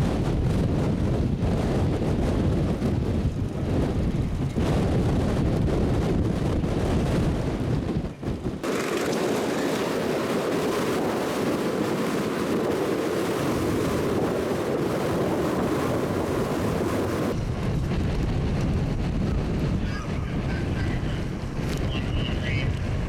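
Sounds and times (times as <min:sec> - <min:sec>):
blizzard wind blowing: 0:00.0 - 0:23.0.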